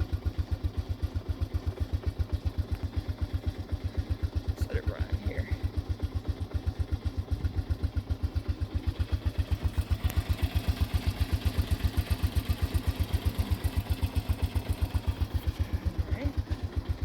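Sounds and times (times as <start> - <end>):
quad bike engine idling: 0.0 - 17.0.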